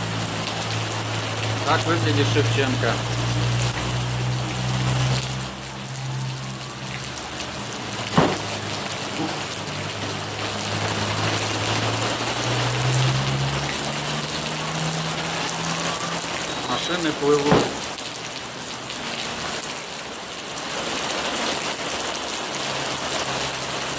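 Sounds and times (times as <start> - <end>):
car engines running: 0.0 - 18.9
rain falling on a flooded street: 0.0 - 23.9
short sharp knock: 8.2 - 8.4.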